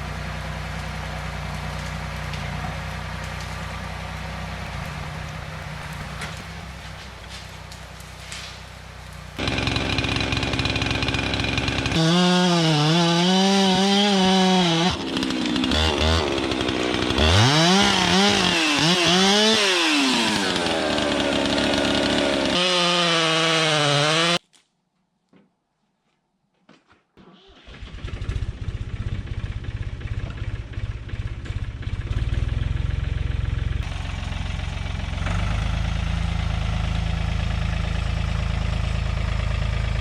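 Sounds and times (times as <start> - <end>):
chainsaw revving: 9.4 - 24.4.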